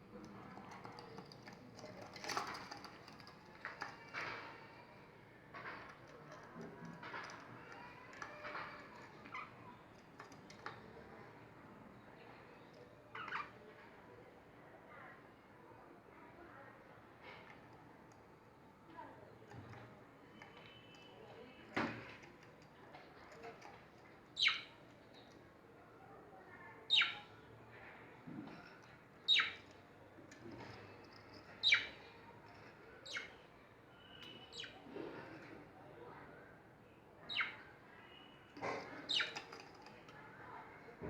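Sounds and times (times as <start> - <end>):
bird chirping: 24.4 - 24.8, 26.9 - 27.3, 29.3 - 29.7, 31.6 - 32.2.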